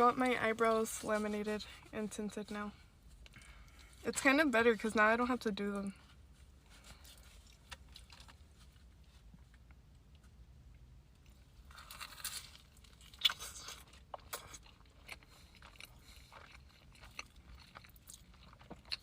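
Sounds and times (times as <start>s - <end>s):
crunchy bite: 11.6s - 15.3s
chewing with small clicks: 13.1s - 19.0s.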